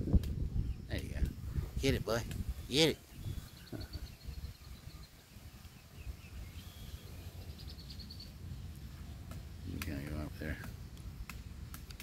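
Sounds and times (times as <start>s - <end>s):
low wind rumble: 0.0s - 12.0s
distant bird trilling: 2.4s - 9.8s.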